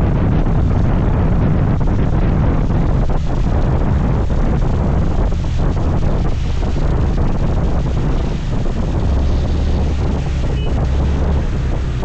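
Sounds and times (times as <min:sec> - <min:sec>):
engine and road rumble: 0:00.0 - 0:12.0
wind buffeting microphone: 0:00.0 - 0:12.0.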